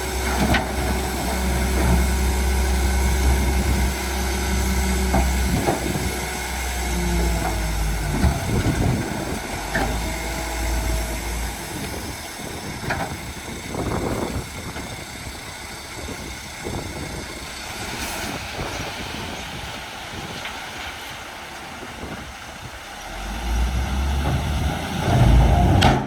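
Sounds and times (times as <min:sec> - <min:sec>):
heavy machinery engine rumble: 0:00.0 - 0:26.0.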